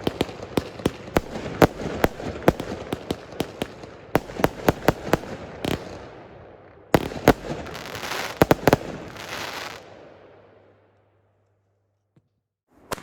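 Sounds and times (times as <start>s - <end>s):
firework crack: 0.0s - 6.2s, 6.9s - 10.0s
fireworks banging: 0.0s - 6.2s, 6.9s - 9.9s
fireworks crackling hiss: 7.2s - 9.9s.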